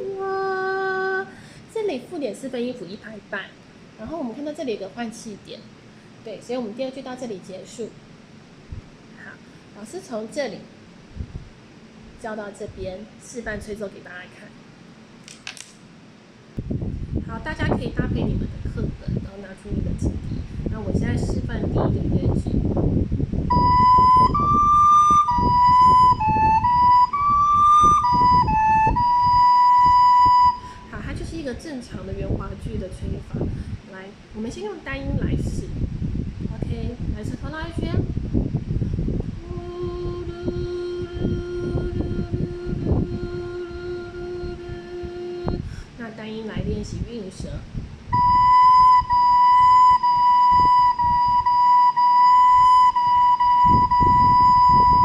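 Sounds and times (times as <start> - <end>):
soprano recorder melody: 23.5 - 30.9, 48.1 - 55.0.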